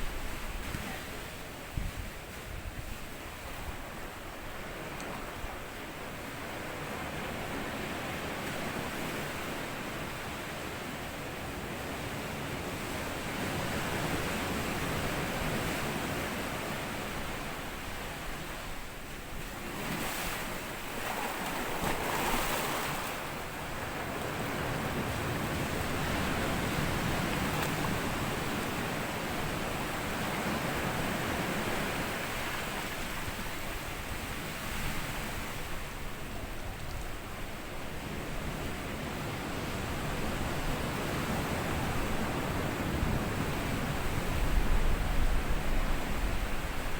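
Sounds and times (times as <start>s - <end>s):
sea waves on sandy beach: 0.0s - 46.9s.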